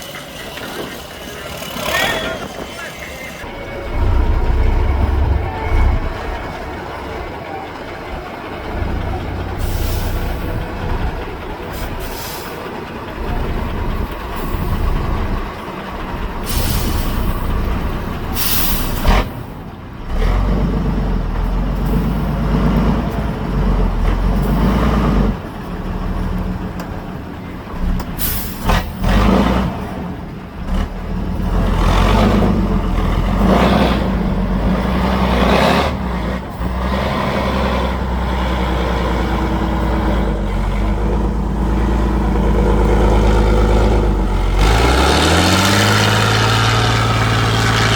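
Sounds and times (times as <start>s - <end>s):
truck diesel engine under load: 0.0s - 47.9s
short sharp hisses: 16.4s - 17.4s, 18.4s - 19.1s.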